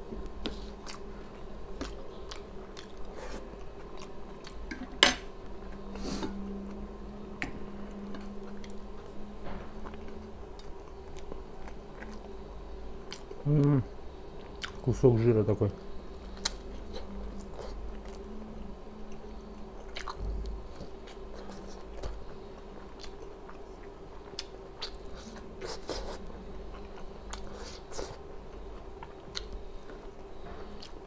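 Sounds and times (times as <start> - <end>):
chewing and biting meat: 19.8 - 28.2.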